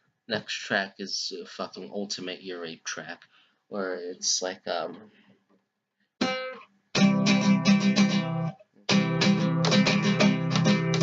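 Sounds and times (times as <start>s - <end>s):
acoustic guitar strumming: 6.2s - 11.0s.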